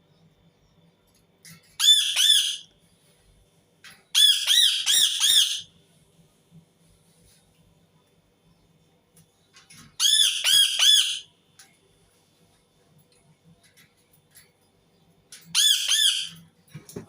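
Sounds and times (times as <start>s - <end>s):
parakeet screeching: 1.8s - 2.7s, 4.1s - 5.7s, 10.0s - 11.3s, 15.5s - 16.4s.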